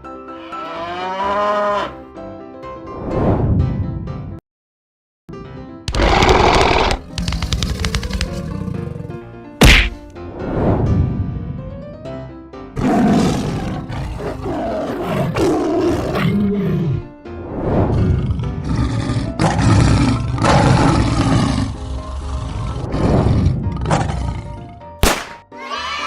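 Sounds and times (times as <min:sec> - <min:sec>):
background music: 0:00.0 - 0:04.4, 0:05.3 - 0:26.0
cartoon big cats roaring: 0:05.9 - 0:09.3, 0:12.8 - 0:17.1, 0:17.9 - 0:24.9
sharp crack: 0:09.6 - 0:10.2, 0:25.0 - 0:25.4.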